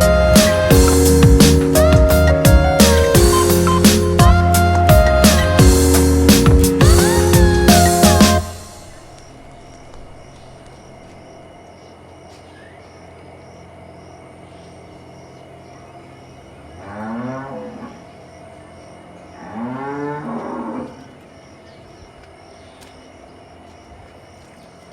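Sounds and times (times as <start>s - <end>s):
cow mooing: 16.8s - 18.0s, 19.4s - 21.1s.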